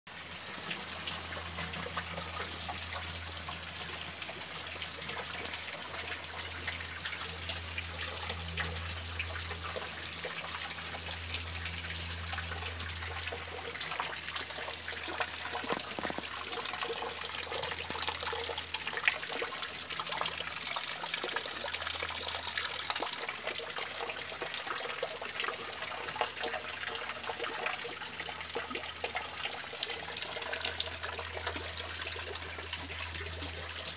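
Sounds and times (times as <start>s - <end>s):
rain on foliage and lawn: 14.7s - 19.1s.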